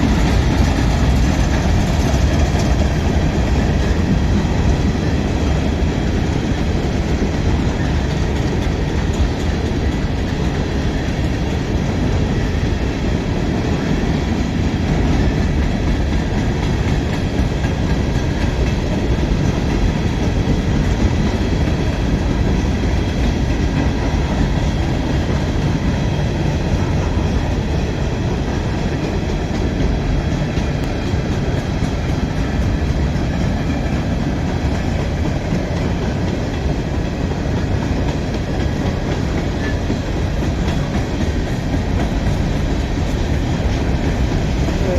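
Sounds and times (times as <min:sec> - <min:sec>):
train wheels rumbling on rails: 0:00.0 - 0:44.9.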